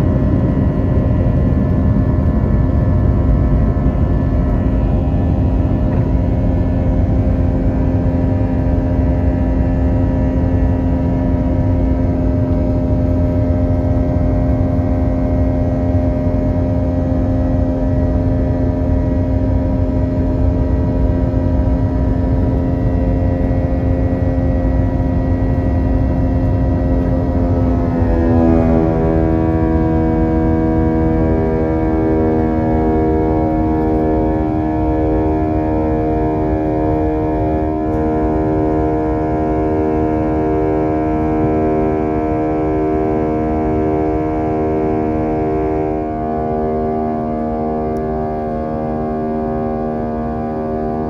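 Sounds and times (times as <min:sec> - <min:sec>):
jet engines rumbling in cabin: 0:00.0 - 0:51.0.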